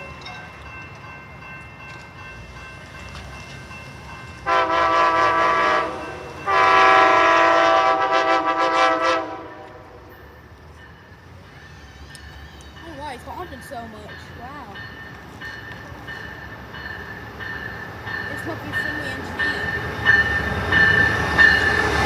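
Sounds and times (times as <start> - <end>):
locomotive air horn blasts: 4.4 - 10.1.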